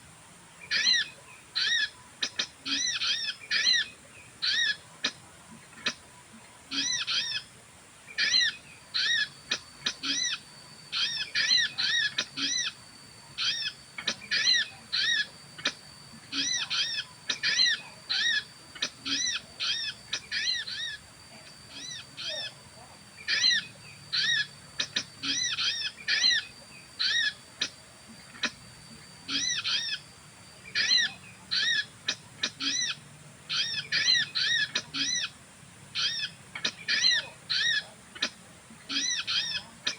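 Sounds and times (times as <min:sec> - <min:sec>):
bird chirping: 0:08.1 - 0:39.9.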